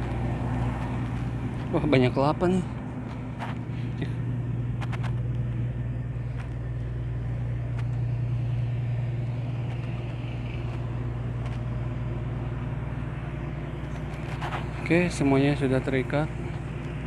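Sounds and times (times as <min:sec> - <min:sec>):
ship engine machinery hum: 0:00.0 - 0:17.0.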